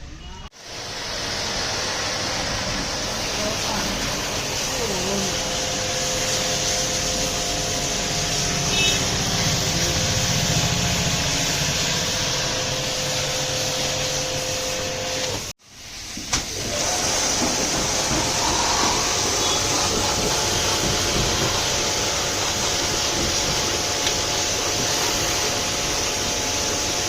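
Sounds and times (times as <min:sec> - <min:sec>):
machine hum: 0:00.6 - 0:15.5
high-pressure water jet hissing: 0:00.6 - 0:27.0.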